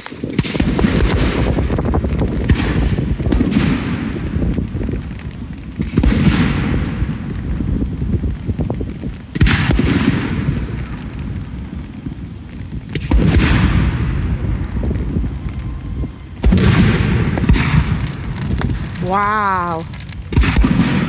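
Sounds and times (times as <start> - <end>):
firework shells booming: 0.0 - 21.0
low rumble: 10.5 - 21.0.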